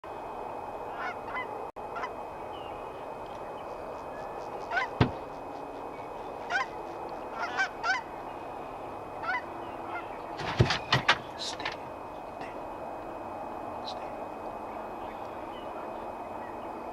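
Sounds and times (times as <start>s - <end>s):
geese honking: 0.9s - 3.0s, 3.6s - 12.7s.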